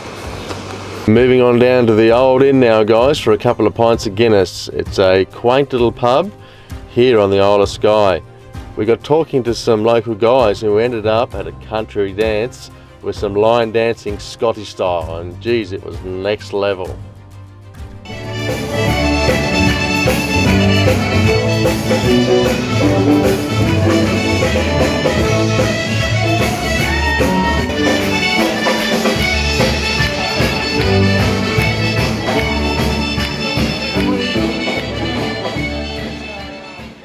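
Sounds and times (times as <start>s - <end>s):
accordion dance music: 18.0s - 37.0s.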